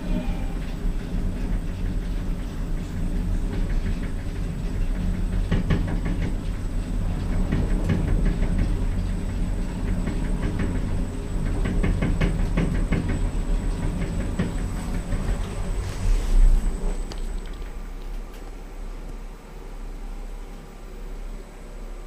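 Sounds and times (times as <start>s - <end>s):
lift car rumbling in shaft: 0.0s - 22.0s.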